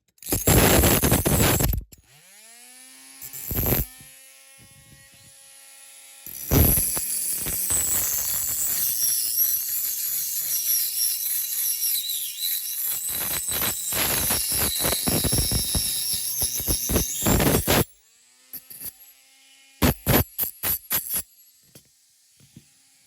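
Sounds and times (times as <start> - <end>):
hand saw rasping on metal: 6.2 - 17.8.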